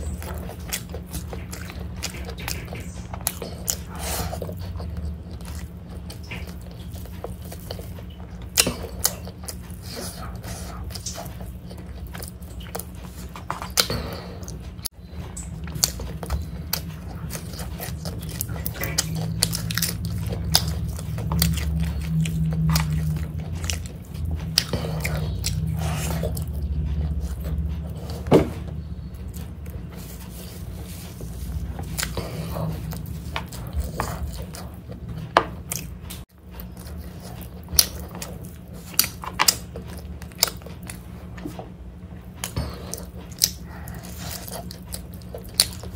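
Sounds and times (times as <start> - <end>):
person chewing food: 0.0 - 45.9
steady low hum: 0.0 - 45.9.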